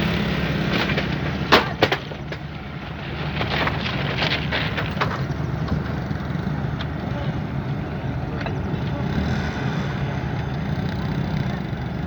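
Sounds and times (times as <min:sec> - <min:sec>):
loud sharp clanks: 0:00.0 - 0:02.7
light clatters: 0:00.0 - 0:07.5
locomotive engine humming: 0:00.0 - 0:12.0.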